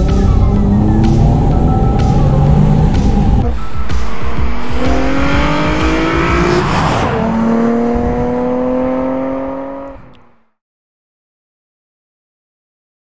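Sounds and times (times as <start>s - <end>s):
car rushing past: 0.0s - 10.2s
car engine accelerating hard: 0.0s - 10.5s.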